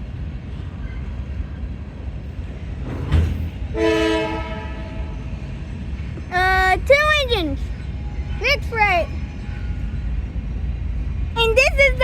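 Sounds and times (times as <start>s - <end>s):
train rumble: 0.0s - 12.0s
locomotive air horn blast: 3.7s - 5.2s.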